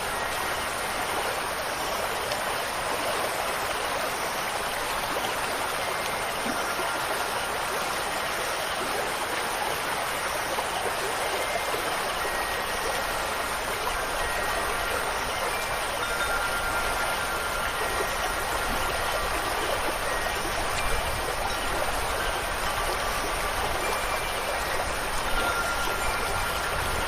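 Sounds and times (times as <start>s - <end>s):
rushing water: 0.0s - 27.0s
wind chimes ringing: 5.3s - 8.0s, 10.1s - 27.0s.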